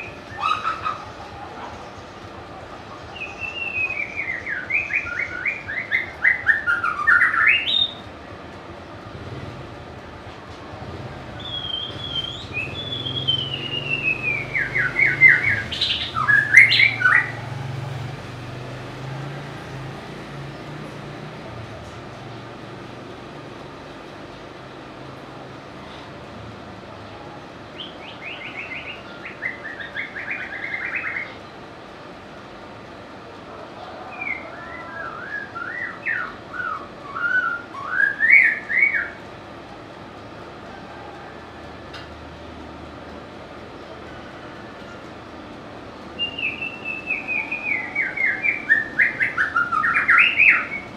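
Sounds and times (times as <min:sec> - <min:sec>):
bird singing whistles and notes: 0:03.1 - 0:08.1, 0:11.4 - 0:17.4, 0:34.1 - 0:39.2, 0:46.2 - 0:50.9.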